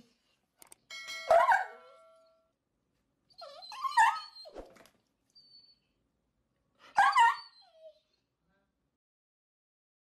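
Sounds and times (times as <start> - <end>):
dog whining: 3.3 - 4.7, 6.8 - 8.2.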